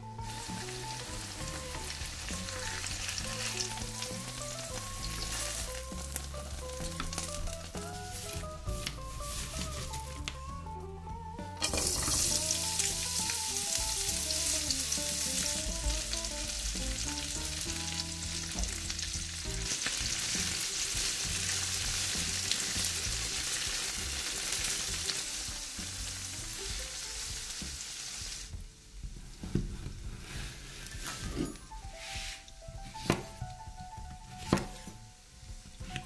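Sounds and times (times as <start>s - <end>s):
onions sizzling in oil: 0.0s - 10.4s, 11.6s - 29.5s.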